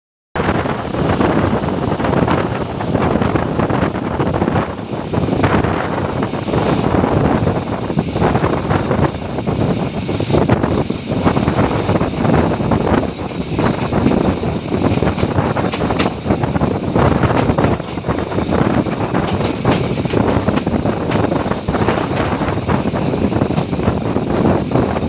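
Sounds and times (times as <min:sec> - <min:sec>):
diesel train running fast: 0:00.4 - 0:25.0
wind buffeting microphone: 0:00.4 - 0:25.0
sharp clacks: 0:14.9 - 0:16.3, 0:17.2 - 0:24.1.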